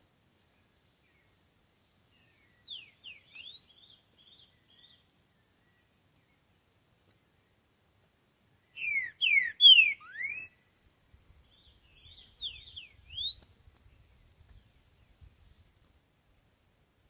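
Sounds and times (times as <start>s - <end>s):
faint high-pitched hiss: 0.0s - 17.0s
bird singing whistled notes: 2.1s - 6.4s, 8.6s - 10.6s, 11.4s - 15.3s.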